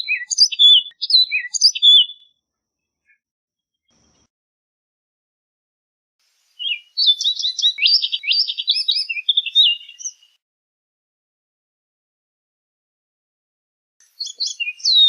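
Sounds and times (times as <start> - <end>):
bird singing whistled notes: 0.0 - 2.4, 6.4 - 10.4, 14.0 - 15.0.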